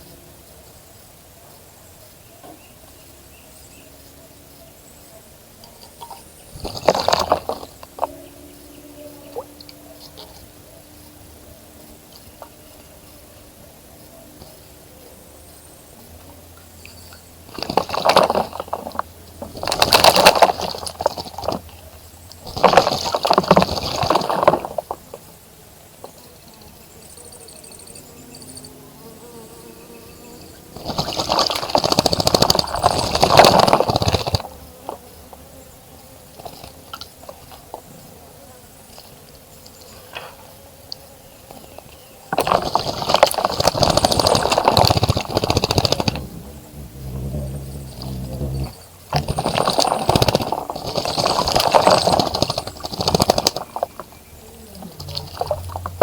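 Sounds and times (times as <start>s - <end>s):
bird splashing in water: 6.5s - 8.2s, 17.5s - 21.7s, 22.4s - 25.2s, 30.8s - 35.0s, 42.4s - 46.4s, 49.1s - 54.3s, 55.0s - 56.0s.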